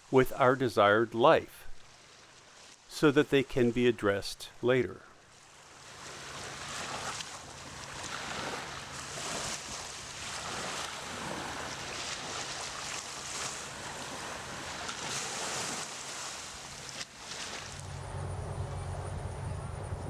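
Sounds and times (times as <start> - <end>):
small waves washing ashore: 0.0 - 20.0
wind: 0.0 - 20.0
faint low hum: 17.8 - 20.0.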